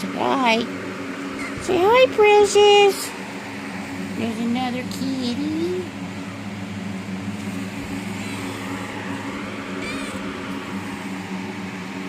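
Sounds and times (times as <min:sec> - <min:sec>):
appliance mechanical hum: 0:00.0 - 0:12.0
brief high squeak: 0:09.8 - 0:10.2.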